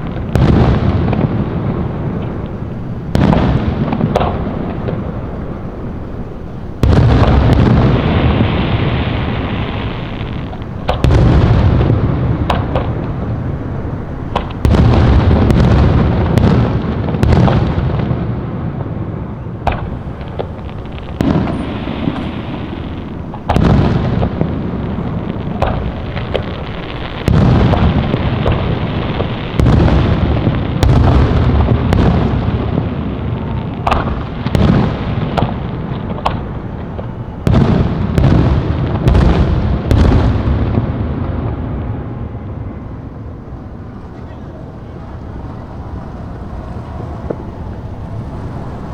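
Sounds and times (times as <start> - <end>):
fireworks booming: 0.0 - 48.9
low rumble: 18.0 - 40.0, 40.6 - 48.9.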